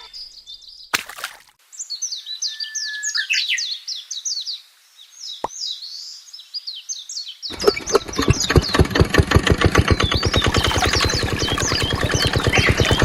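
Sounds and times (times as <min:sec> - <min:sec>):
songbird chirping: 0:00.0 - 0:13.0
short noisy burst: 0:07.5 - 0:13.0.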